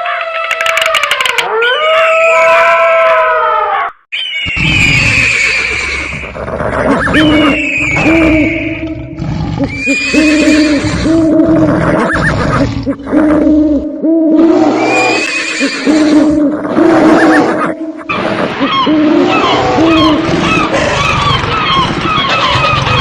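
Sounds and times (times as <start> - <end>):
horses neighing and whinnying: 4.4 - 13.8, 14.7 - 23.0.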